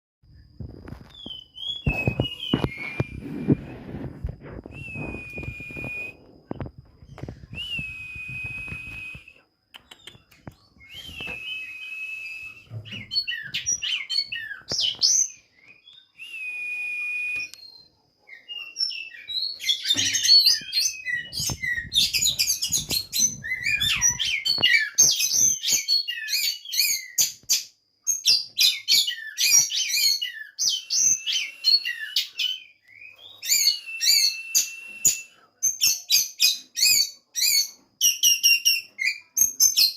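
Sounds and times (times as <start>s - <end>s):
birds singing whistles: 0.8s - 39.9s.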